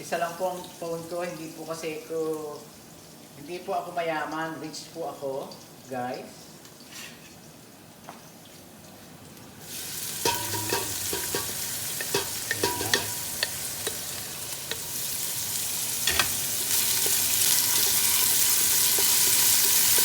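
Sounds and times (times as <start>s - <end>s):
food sizzling in hot oil: 9.6s - 20.0s
spoon scraping a pot: 10.2s - 15.0s, 16.0s - 20.0s.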